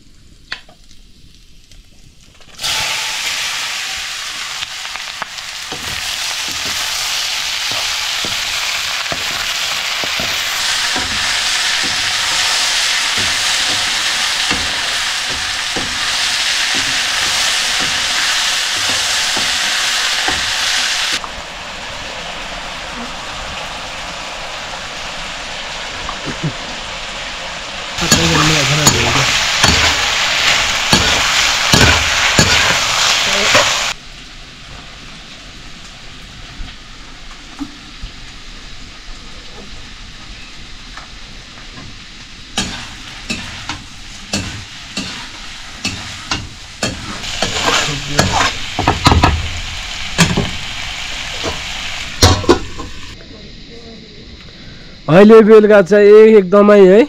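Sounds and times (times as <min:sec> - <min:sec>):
vegetables sizzling in a wok: 0:00.8 - 0:53.6
utensil scraping a wok: 0:02.6 - 0:21.3, 0:28.0 - 0:34.0, 0:42.5 - 0:53.2.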